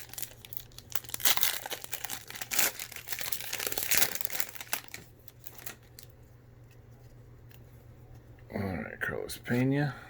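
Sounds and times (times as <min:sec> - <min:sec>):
wrapper crinkling: 0:00.0 - 0:06.1.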